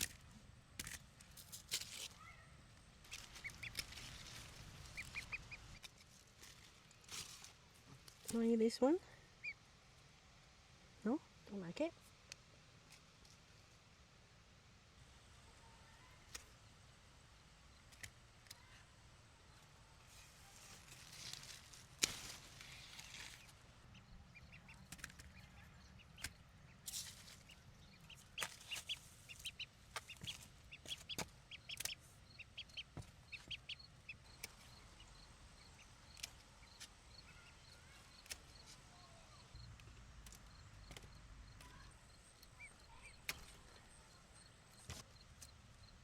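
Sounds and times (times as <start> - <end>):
chickens clucking: 23.4 - 35.1.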